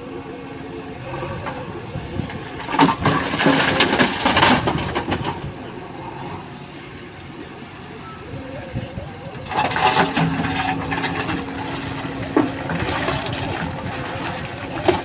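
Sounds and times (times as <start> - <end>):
diesel machinery running: 0.0 - 15.0
stones pouring and tumbling: 2.8 - 5.4.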